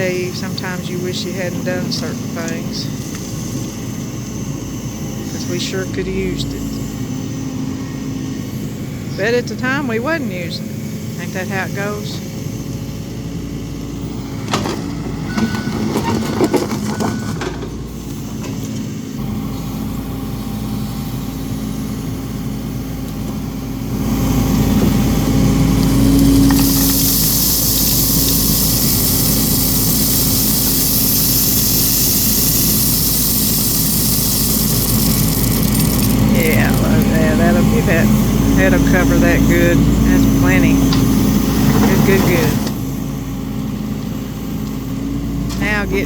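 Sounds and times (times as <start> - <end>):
excavator diesel engine running: 0.0 - 46.0
knocks and clanks: 14.4 - 17.8
hiss: 25.8 - 37.6.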